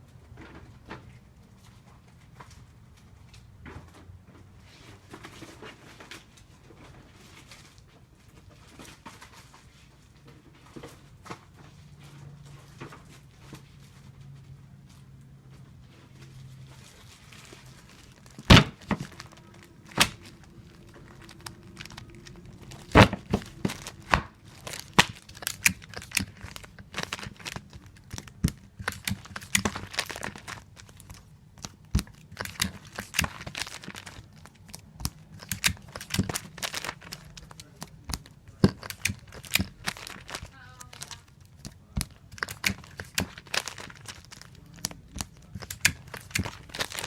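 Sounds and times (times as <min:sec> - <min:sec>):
tape dispenser clicks: 0:18.0 - 0:47.0.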